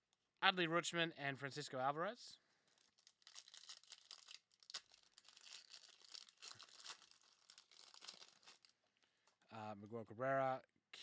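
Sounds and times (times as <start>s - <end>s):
foil pack crinkling and tearing: 2.7s - 8.8s.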